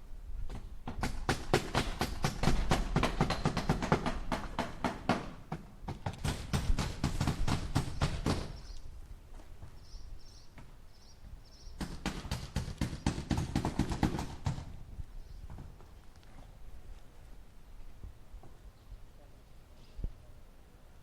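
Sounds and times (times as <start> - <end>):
hammer driving nails into wood: 0.5 - 8.6, 11.8 - 14.8.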